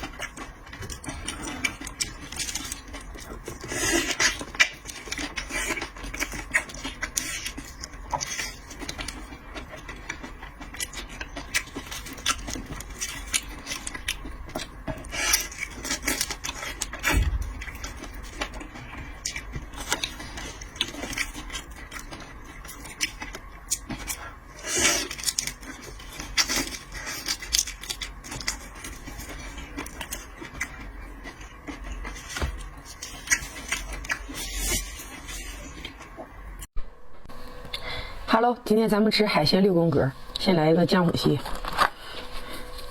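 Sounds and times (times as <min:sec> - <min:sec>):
crunching seafood: 0:00.0 - 0:36.7.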